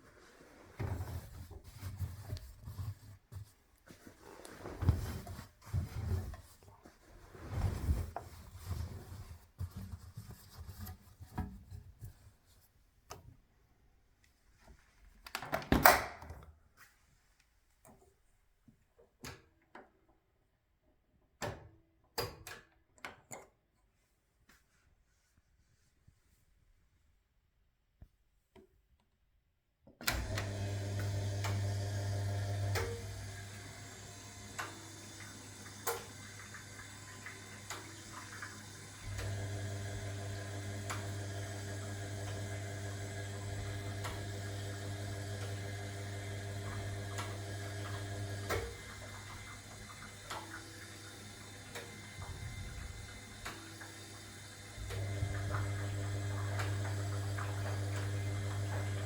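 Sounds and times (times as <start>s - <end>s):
washing machine running: 30.0s - 59.0s
water flowing in: 31.8s - 59.0s.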